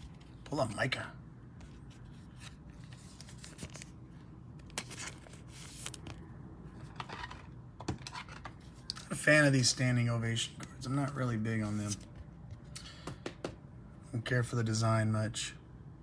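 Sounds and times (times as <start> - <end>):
cards and wrappers sliding and rubbing: 1.6 - 4.0, 4.6 - 6.2.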